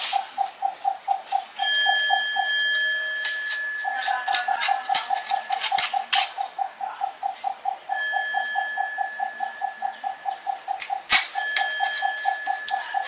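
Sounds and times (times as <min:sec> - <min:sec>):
high-pitched insect tones: 0:00.0 - 0:13.0
pulsing animal call: 0:03.9 - 0:13.0.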